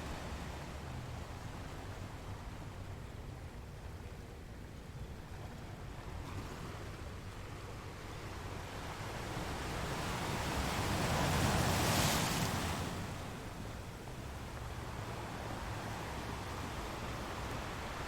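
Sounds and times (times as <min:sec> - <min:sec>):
sea waves washing against rocks: 0:09.5 - 0:14.4.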